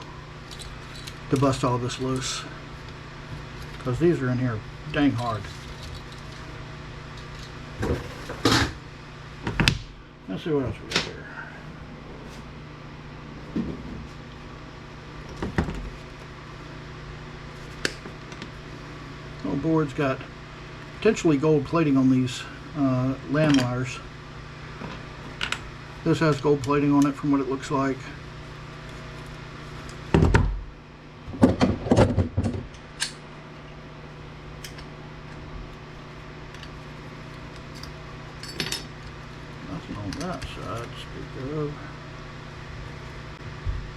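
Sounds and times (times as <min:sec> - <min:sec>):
steady low hum: 0:00.0 - 0:43.9
clunks and knocks of handled parts: 0:31.3 - 0:32.8.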